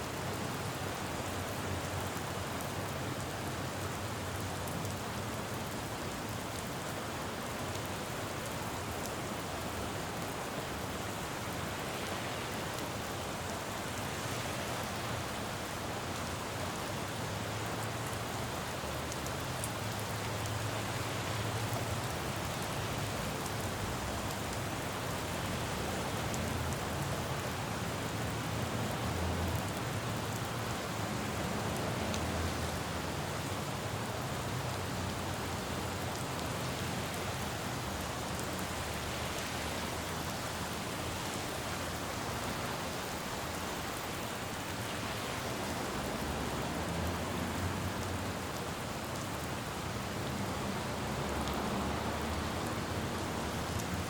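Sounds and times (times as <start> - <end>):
rain on a road: 0.0 - 54.0
traffic rumble: 17.4 - 54.0.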